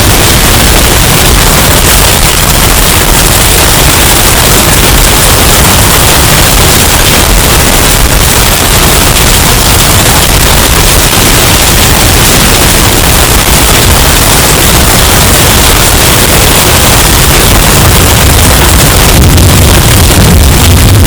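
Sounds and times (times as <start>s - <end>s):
distorted wind roar: 0.0s - 21.0s.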